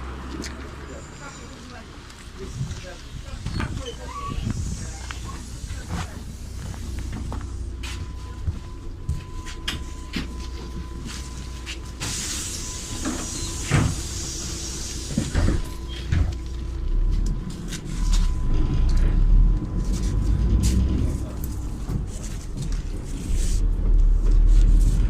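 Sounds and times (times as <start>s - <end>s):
bus engine humming: 0.0s - 25.0s
pneumatic doors hissing: 11.9s - 16.3s.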